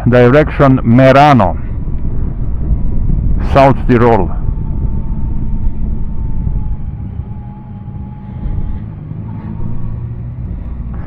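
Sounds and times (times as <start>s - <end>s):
thin steady whine: 0.0s - 11.0s
motorcycle engine running: 4.4s - 11.0s.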